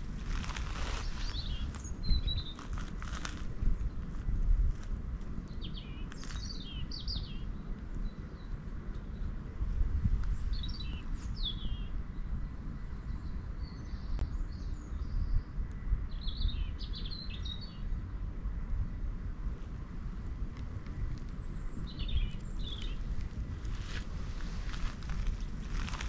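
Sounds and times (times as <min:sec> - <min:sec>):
small bird chirping: 0:00.0 - 0:09.3, 0:21.1 - 0:26.0
low outdoor rumble: 0:00.0 - 0:26.0.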